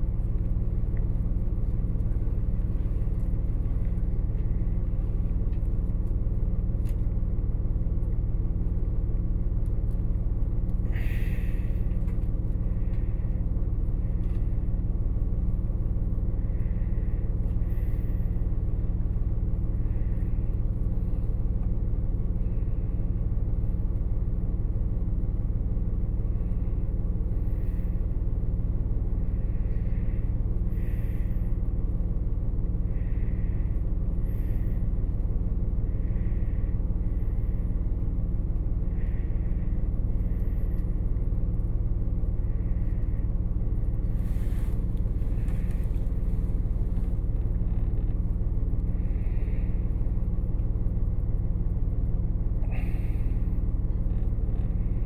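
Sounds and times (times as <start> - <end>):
train carriage rumble: 0.0 - 55.0.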